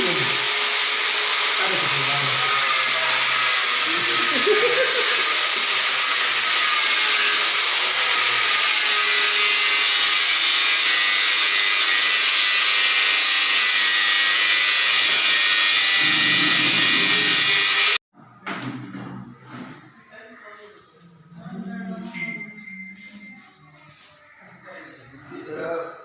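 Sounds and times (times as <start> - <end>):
power tool running loudly: 0.0 - 18.0.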